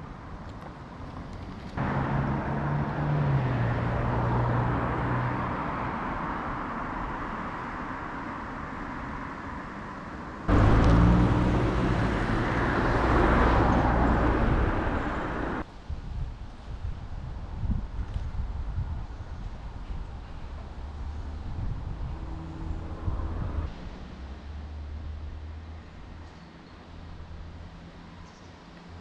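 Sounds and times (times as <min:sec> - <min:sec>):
motor vehicles passing: 0:01.1 - 0:07.1, 0:10.4 - 0:15.7, 0:20.4 - 0:26.3.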